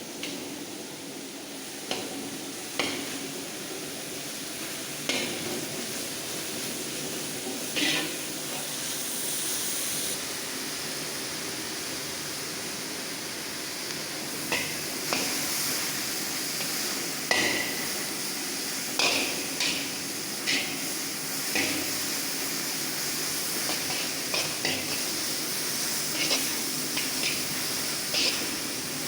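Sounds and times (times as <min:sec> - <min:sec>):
onions sizzling in oil: 0:00.0 - 0:29.0
metal ladle scraping a pan: 0:07.8 - 0:08.6, 0:19.0 - 0:21.0, 0:23.7 - 0:28.8.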